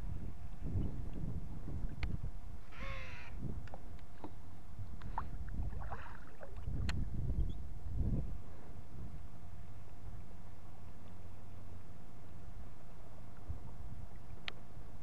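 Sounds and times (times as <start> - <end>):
wind rumble on microphone: 0.0 - 15.0
bird calling: 2.6 - 3.4.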